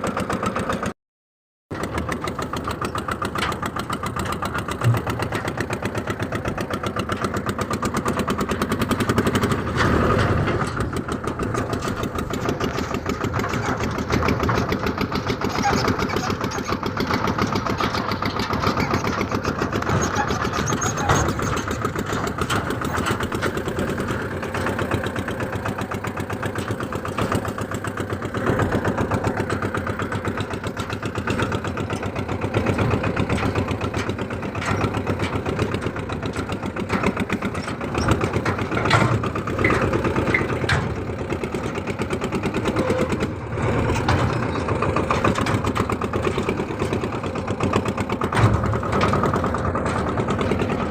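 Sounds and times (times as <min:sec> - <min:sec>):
tractor engine running: 0:00.0 - 0:00.9, 0:01.7 - 0:50.9.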